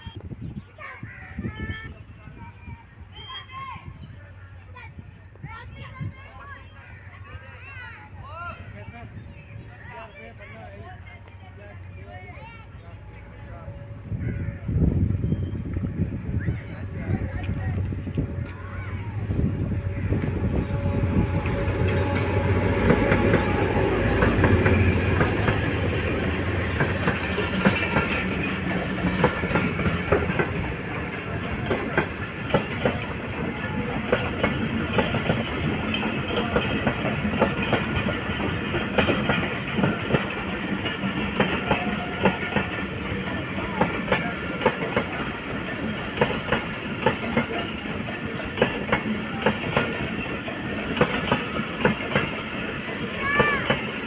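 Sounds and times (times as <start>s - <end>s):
steady train rumble: 0.0s - 54.0s
train engine drone: 0.0s - 54.0s
train wheels clacking over rail joints: 20.2s - 54.0s.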